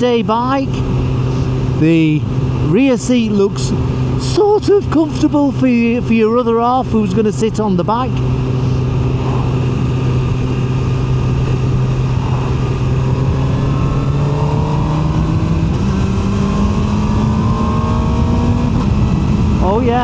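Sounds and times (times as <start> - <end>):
motorcycle engine running: 0.0 - 20.0
wind rush: 8.2 - 20.0.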